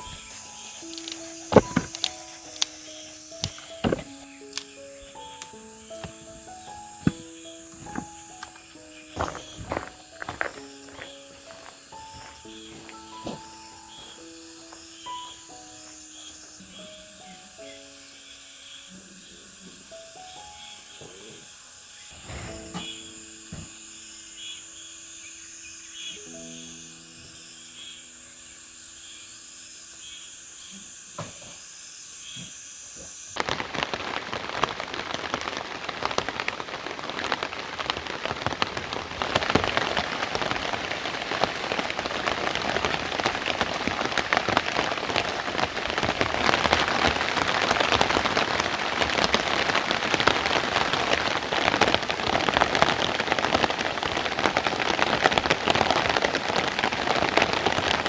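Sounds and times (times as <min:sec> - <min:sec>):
heavy rain falling: 0:00.0 - 0:13.9, 0:33.4 - 0:58.0
soft music: 0:00.0 - 0:31.1, 0:36.6 - 0:58.0.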